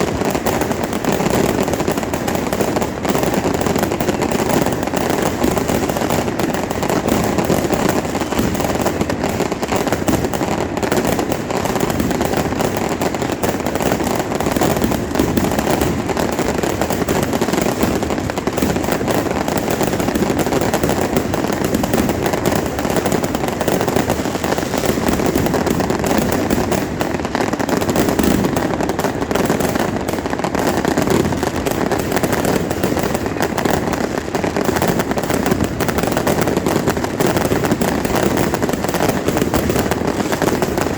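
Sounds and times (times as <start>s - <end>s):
fireworks crackling and popping: 0.0s - 40.9s.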